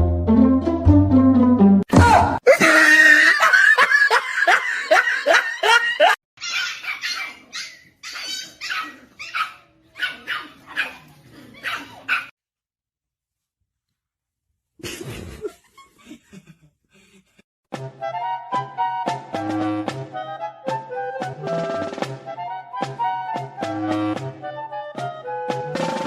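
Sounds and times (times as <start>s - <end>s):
dog yipping and whining: 6.4s - 12.3s.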